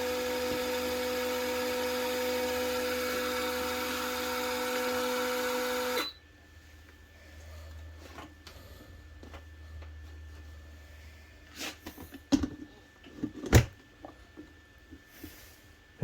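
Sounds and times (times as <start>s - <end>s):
small electric motor whining: 0.0s - 6.2s.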